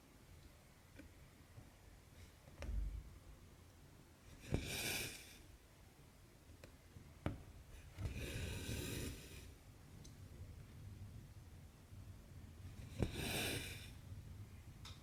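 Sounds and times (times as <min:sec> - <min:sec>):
thread rasping through fabric: 0:04.3 - 0:05.5, 0:07.2 - 0:09.6, 0:12.7 - 0:14.0.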